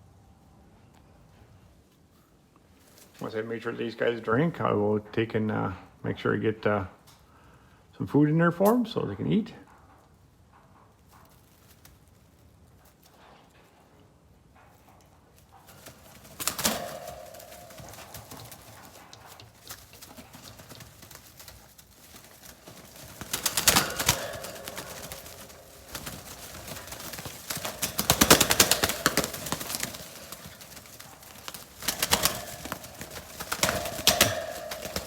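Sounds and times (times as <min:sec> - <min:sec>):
pigeons shuffling: 0:14.6 - 0:35.0
pigeons tapping and clattering in cage: 0:14.6 - 0:35.0.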